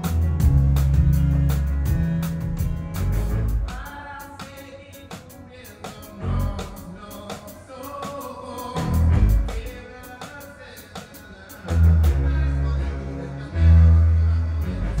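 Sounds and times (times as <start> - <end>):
heavy bass notes: 0.0 - 4.1, 6.1 - 7.2, 8.8 - 9.8, 11.7 - 15.0
ticking cymbal beat: 0.0 - 12.0
pop-rock band playing: 0.0 - 15.0.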